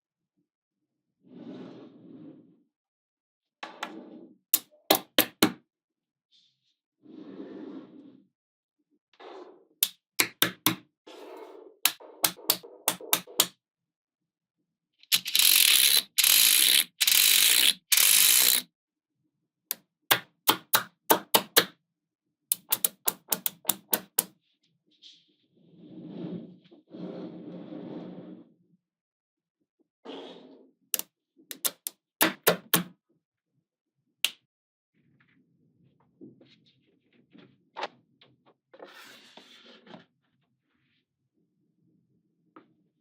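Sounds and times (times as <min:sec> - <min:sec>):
magnetic balls snapping together: 0:09.8 - 0:10.8, 0:11.9 - 0:13.5, 0:22.5 - 0:24.3, 0:31.5 - 0:32.9.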